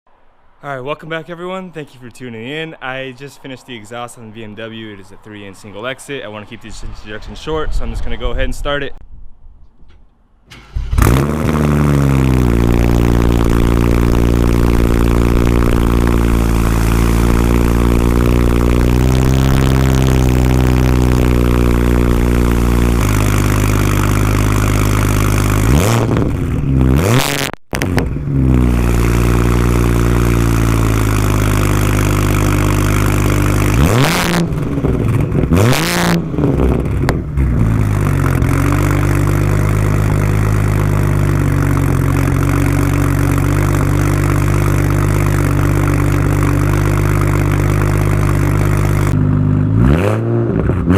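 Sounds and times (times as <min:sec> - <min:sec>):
loud car engine idling and revving: 0:10.5 - 0:50.9.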